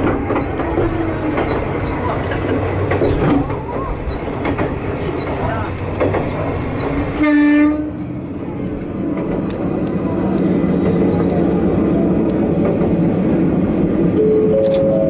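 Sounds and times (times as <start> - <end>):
railcar engine and wheels rumbling: 0.0 - 15.0
train horn blast: 7.2 - 8.0.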